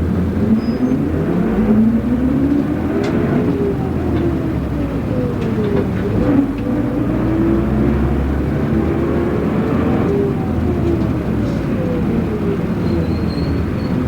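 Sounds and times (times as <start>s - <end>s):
bus engine and road rumble: 0.0s - 14.0s.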